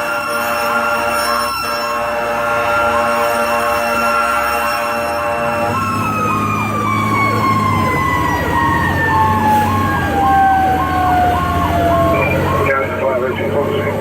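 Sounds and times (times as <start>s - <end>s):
air horn blast: 0.0s - 6.3s
mechanical siren winding down: 0.0s - 13.3s
electronic siren yelping: 0.0s - 14.0s
truck engine: 0.0s - 14.0s.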